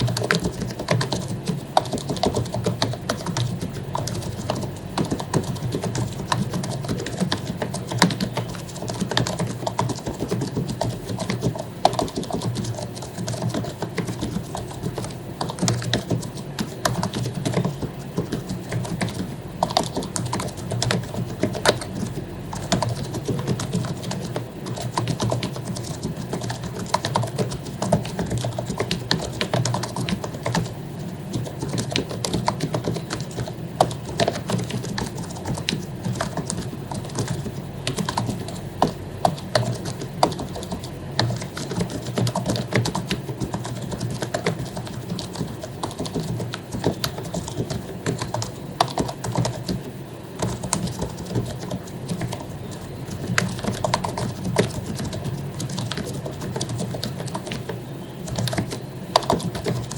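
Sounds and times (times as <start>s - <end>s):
fast typing on keyboard: 0.0s - 59.9s.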